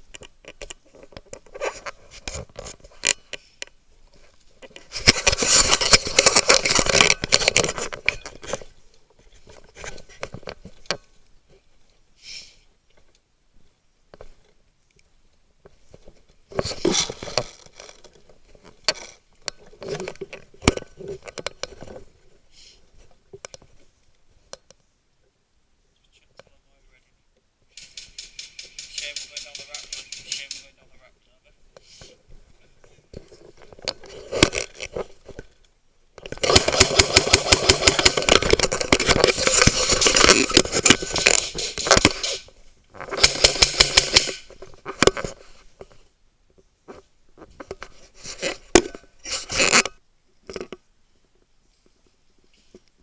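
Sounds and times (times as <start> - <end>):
sharp clicks and knocks: 27.7 - 30.8, 36.2 - 45.3
sharp crack: 27.7 - 30.8.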